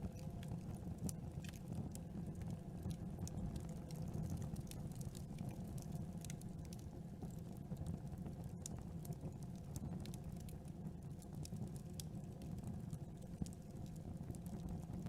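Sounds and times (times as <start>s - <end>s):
campfire pops and snaps: 0.0s - 2.0s, 2.8s - 7.3s
low rumble of flames: 0.0s - 15.0s.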